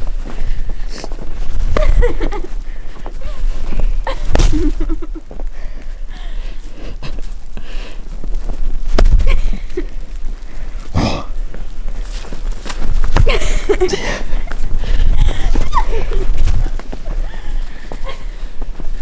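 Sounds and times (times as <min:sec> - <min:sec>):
short vocal sound: 0:10.9 - 0:11.4.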